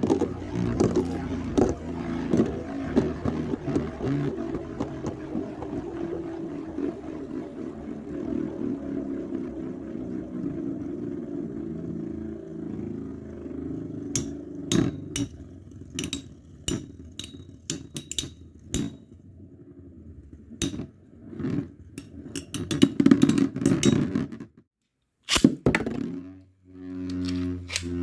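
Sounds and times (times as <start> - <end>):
spinning tops whirring: 0.0 - 19.2.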